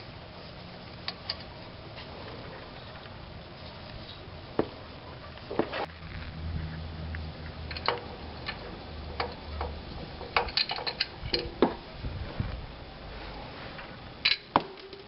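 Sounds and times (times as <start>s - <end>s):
low steady hum: 0.0s - 15.0s
hand tools clicking and knocking: 7.7s - 11.8s.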